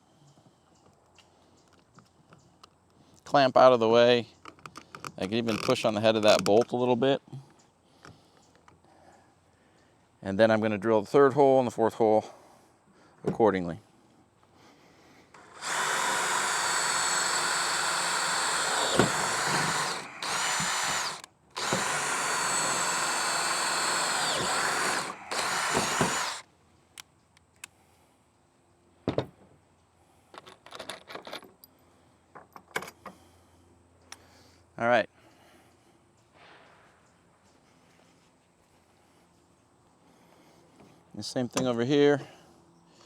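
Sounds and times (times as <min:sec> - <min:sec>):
power drill boring through metal: 0:15.4 - 0:26.4.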